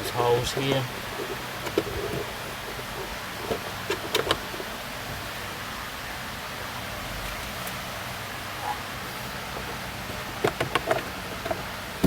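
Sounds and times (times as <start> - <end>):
steady hiss: 0.0 - 12.0
plastic clicks and knocks: 1.2 - 2.3, 3.4 - 4.4, 10.4 - 11.6.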